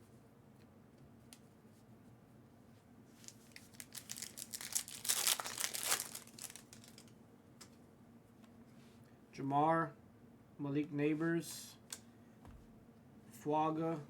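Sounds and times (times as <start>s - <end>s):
wrapper tearing and crinkling: 3.2s - 7.1s.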